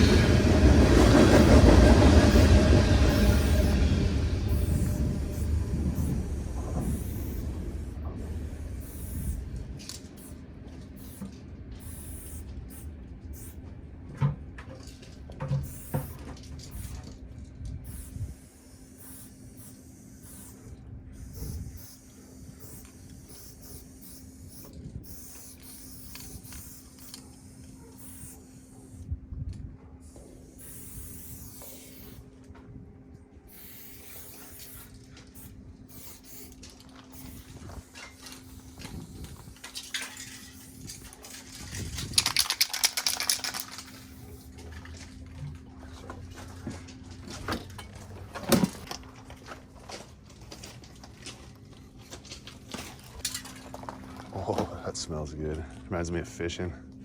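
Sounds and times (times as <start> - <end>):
low rumble: 0.0 - 10.2
spray paint can hissing: 2.1 - 10.4, 11.0 - 13.6, 15.6 - 17.1, 17.8 - 29.0, 30.1 - 32.2, 33.5 - 41.0, 41.8 - 44.5.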